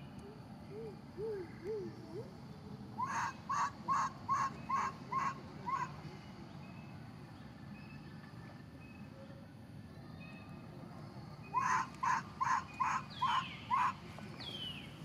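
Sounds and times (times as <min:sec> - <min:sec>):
bird calling: 0:00.0 - 0:02.4, 0:03.0 - 0:06.0, 0:11.4 - 0:14.8.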